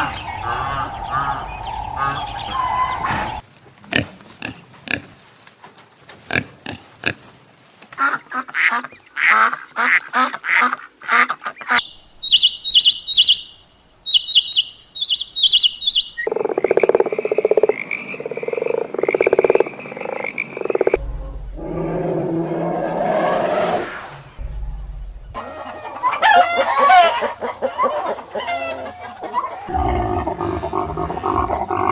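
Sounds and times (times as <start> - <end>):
buzzy animal calls: 0.0 - 3.4
rapid pulsed animal calls: 0.0 - 3.4
rough noisy animal call: 0.0 - 3.4, 20.1 - 31.9
high chirps: 11.8 - 16.3.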